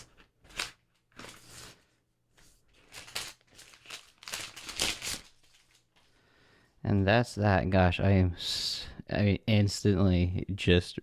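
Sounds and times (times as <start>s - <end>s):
plastic film being peeled off: 2.8s - 6.0s.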